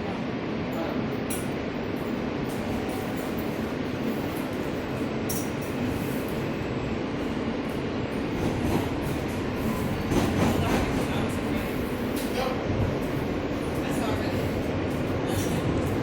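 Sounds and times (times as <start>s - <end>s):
subway car rumbling on track: 0.0s - 16.0s.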